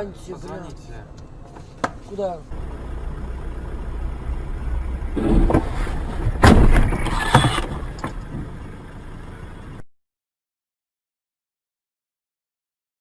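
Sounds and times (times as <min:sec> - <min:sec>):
car engine and road rumble: 0:00.0 - 0:09.9
car collision bang: 0:05.0 - 0:08.5
noisy clatter and knocks: 0:05.2 - 0:08.5.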